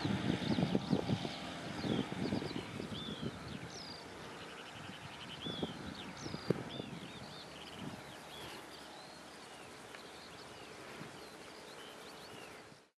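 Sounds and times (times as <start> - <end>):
outdoor background hiss: 0.0 - 12.9
small birds chirping: 0.0 - 12.9.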